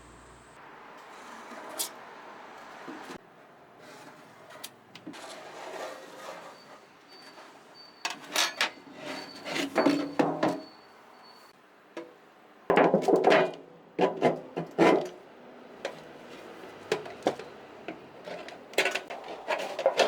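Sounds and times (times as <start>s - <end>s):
scraping and knocking: 15.9s - 20.0s.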